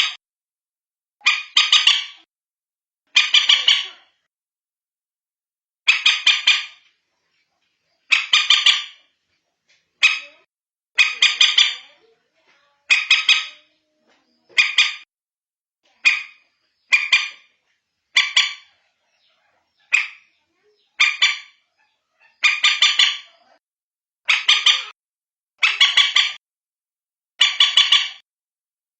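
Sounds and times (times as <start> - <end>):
moorhen calls: 3.1 - 4.2, 8.1 - 9.0, 10.0 - 12.1, 12.7 - 13.8, 14.4 - 15.1, 15.9 - 23.6, 24.3 - 25.0, 25.6 - 26.4, 27.4 - 28.2.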